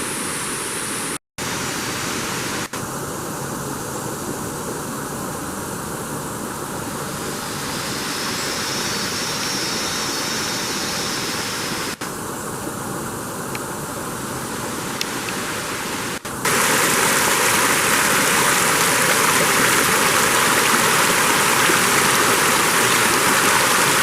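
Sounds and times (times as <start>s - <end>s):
steady rushing noise: 11.4s - 24.0s.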